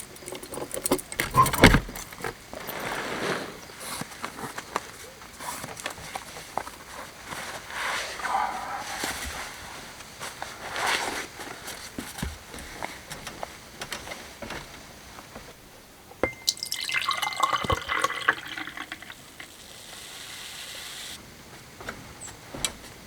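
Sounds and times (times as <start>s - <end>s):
water dripping: 16.2s - 19.6s.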